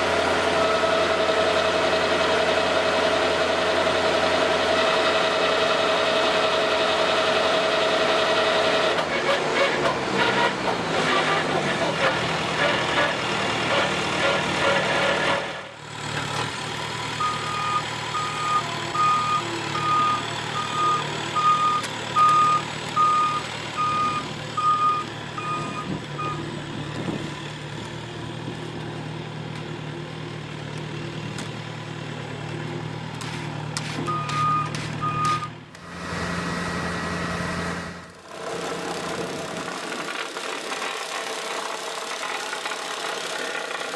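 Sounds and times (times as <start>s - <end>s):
heavy machine engine running: 0.0s - 43.9s
reversing alarm beeping: 17.2s - 26.4s, 34.1s - 35.5s.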